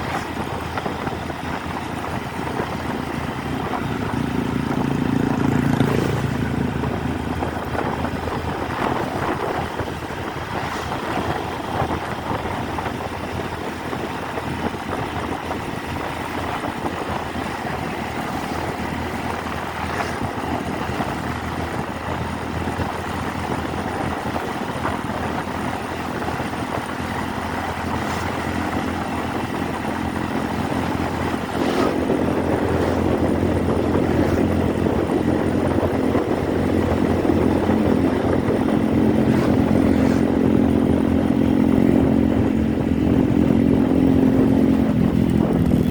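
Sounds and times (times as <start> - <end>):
motorcycle engine humming: 0.0 - 45.9
road noise: 0.0 - 45.9.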